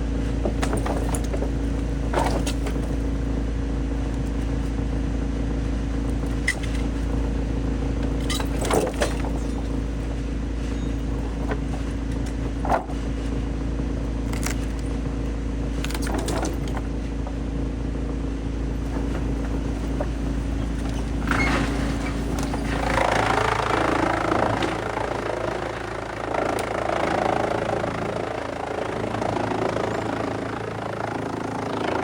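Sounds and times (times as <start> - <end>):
wood chipper droning: 0.0 - 32.0
knocks and clatters: 0.3 - 3.1, 8.2 - 9.9, 11.0 - 13.1, 15.8 - 17.0, 18.8 - 23.3.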